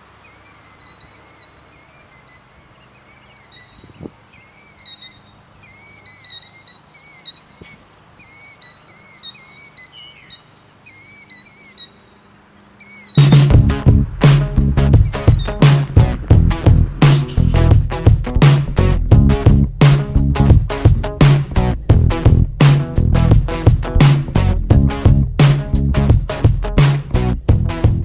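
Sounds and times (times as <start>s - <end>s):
bird calling high slurred notes: 0.0s - 21.9s.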